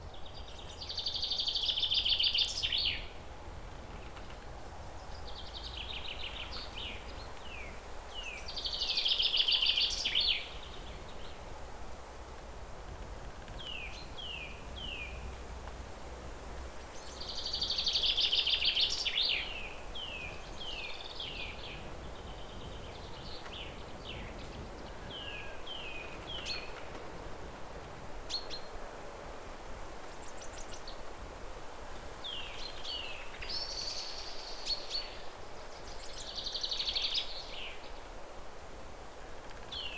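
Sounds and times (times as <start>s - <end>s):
songbird trills and chirps: 0.1s - 3.2s, 5.0s - 11.4s, 16.9s - 27.2s, 32.2s - 38.0s.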